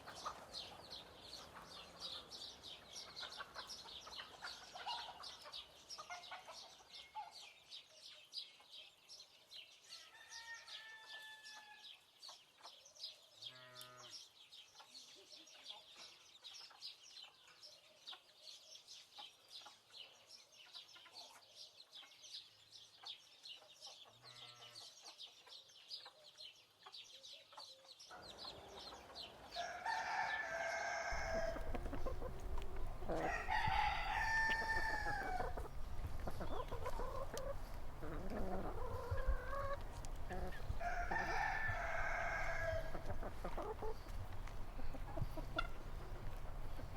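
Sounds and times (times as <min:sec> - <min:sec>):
chicks peeping: 0:00.0 - 0:07.3, 0:24.8 - 0:46.9
hen clucking: 0:28.5 - 0:46.9
rooster crowing: 0:29.6 - 0:35.6, 0:40.8 - 0:43.0
wind rumble on microphone: 0:31.2 - 0:46.9.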